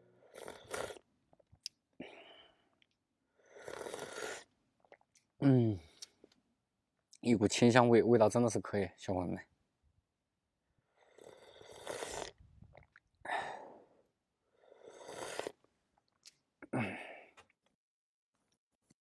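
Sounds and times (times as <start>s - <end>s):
person sipping hot tea: 0.2s - 1.5s, 3.4s - 5.1s, 10.9s - 13.6s, 14.5s - 15.6s
person sighing: 5.4s - 6.0s, 13.2s - 13.9s, 16.6s - 17.4s.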